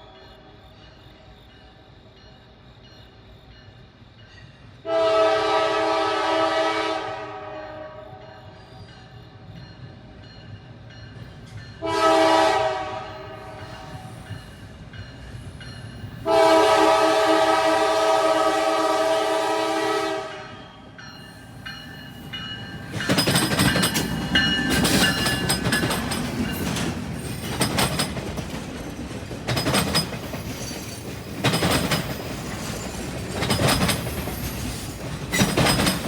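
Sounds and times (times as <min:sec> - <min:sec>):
low rumble of train: 0:00.0 - 0:36.0
locomotive air horn blasts: 0:04.8 - 0:08.2, 0:11.8 - 0:13.8, 0:16.2 - 0:20.8.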